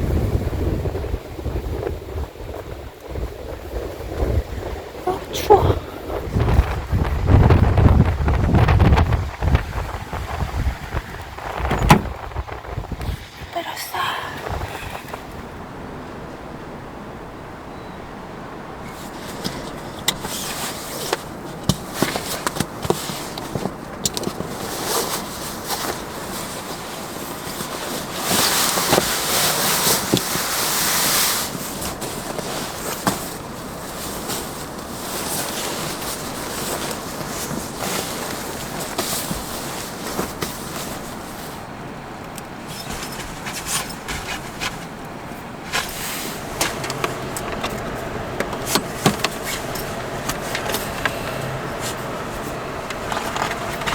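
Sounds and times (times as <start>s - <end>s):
loud rustling hiss: 18.9s - 41.7s, 42.5s - 53.9s
objects being handled: 18.9s - 53.9s.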